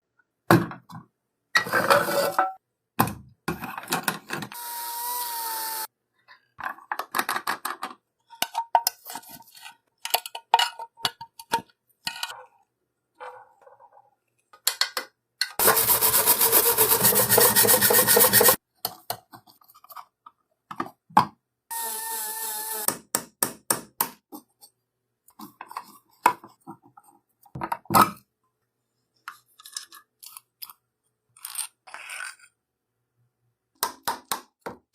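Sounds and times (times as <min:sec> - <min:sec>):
sawing: 0:15.6 - 0:18.6
tool scraping: 0:15.6 - 0:18.6.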